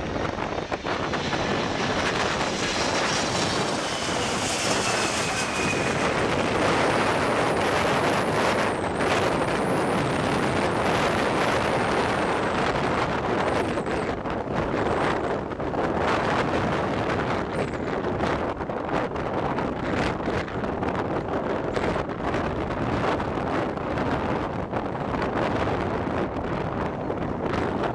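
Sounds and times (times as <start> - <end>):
thin high whine: 0.0 - 14.0
jet engines rushing and whining: 0.0 - 27.9.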